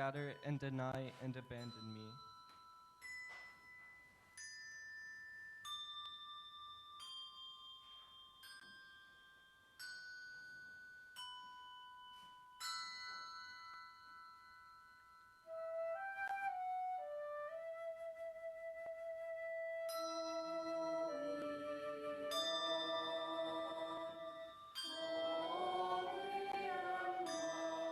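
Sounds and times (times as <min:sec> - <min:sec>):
bell-like tuned percussion notes: 0:00.0 - 0:15.8, 0:19.8 - 0:27.9
flute melody: 0:15.5 - 0:27.9.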